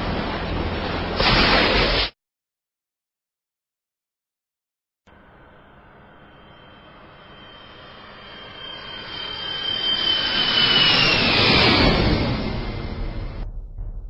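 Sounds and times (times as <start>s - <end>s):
jet aircraft flying by: 0.0s - 2.1s, 5.1s - 13.6s.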